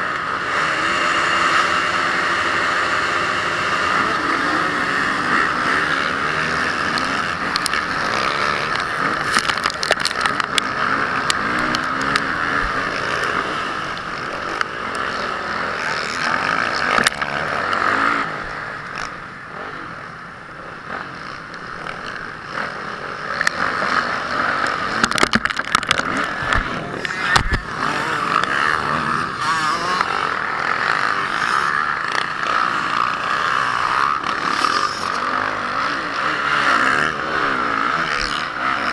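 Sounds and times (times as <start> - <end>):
motocross bike engine revving: 0.0 - 38.9
sharp knocks and clatters: 24.9 - 27.6.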